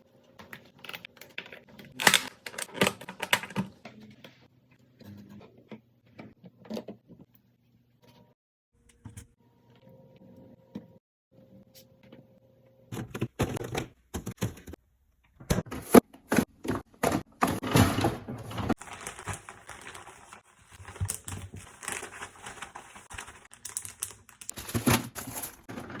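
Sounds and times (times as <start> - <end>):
rustling: 18.7 - 24.0.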